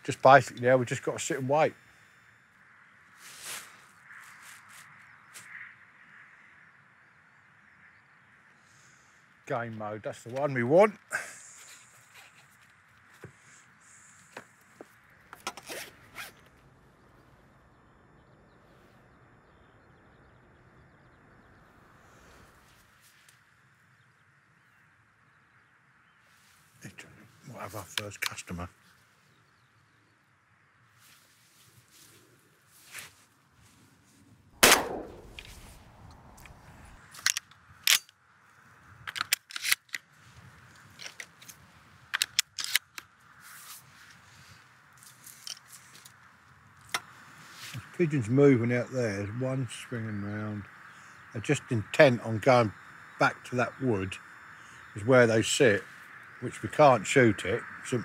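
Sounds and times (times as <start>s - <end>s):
faint outdoor background: 0.0s - 58.0s
zip pulled rasping: 15.6s - 16.4s
shotgun metallic clicks: 34.6s - 35.6s, 39.1s - 40.1s.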